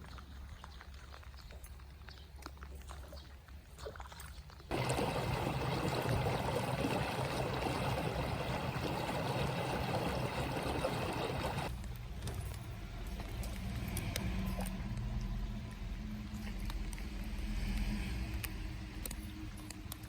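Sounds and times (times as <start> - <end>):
rushing water: 4.7 - 11.7.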